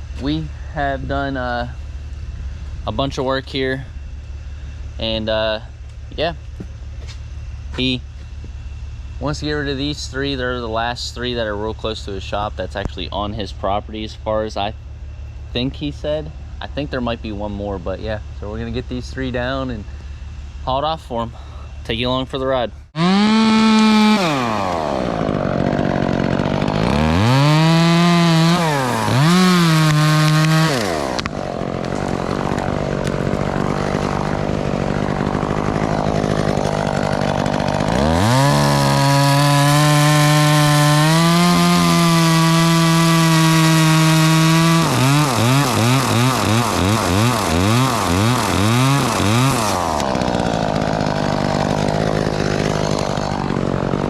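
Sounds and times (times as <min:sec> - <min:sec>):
chainsaw revving and cutting wood: 0:04.4 - 0:13.8, 0:22.9 - 0:54.0.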